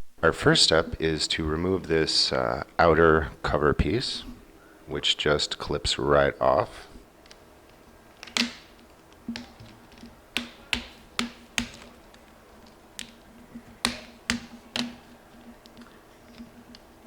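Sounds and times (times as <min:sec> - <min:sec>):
plastic clips snapping loose: 0:08.2 - 0:15.9.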